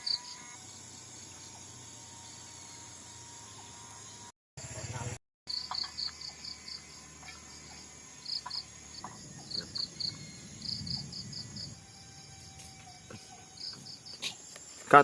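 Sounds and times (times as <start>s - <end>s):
high-pitched insect buzz: 0.0s - 15.0s
crickets chirping: 4.1s - 15.0s.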